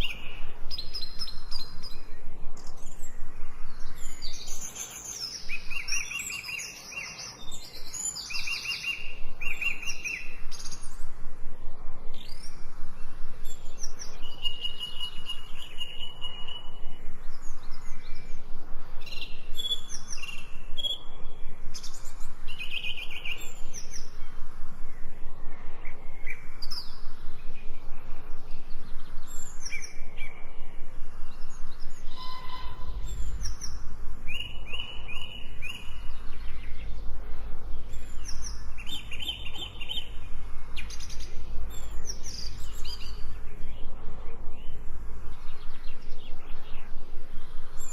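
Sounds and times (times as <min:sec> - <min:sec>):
songbirds chirping: 0:00.0 - 0:47.9
low rumble: 0:23.4 - 0:47.9.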